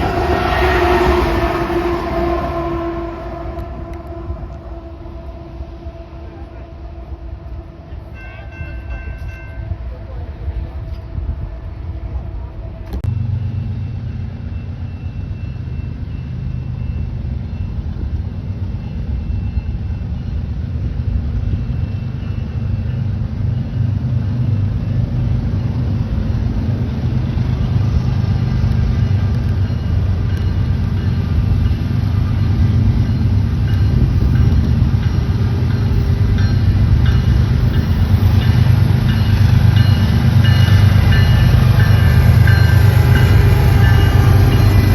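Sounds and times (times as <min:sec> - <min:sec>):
diesel locomotive engine rumbling: 0:00.0 - 0:44.9.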